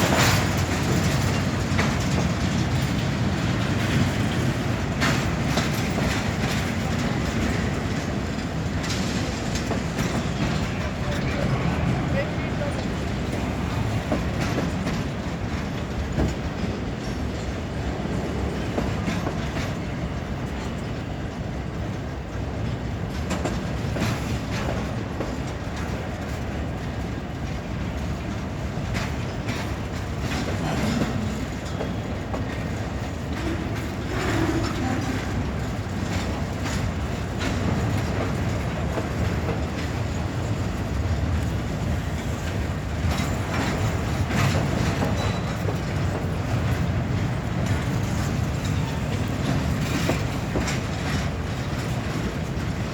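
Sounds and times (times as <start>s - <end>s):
train wheels rumbling on rail: 0.0s - 52.9s
wheels clacking over rail joints: 0.0s - 52.9s.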